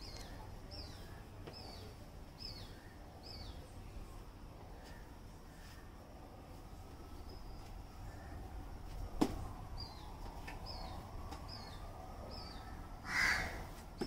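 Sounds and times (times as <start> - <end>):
small bird chirping: 0.0 - 3.7
low steady background: 0.0 - 14.0.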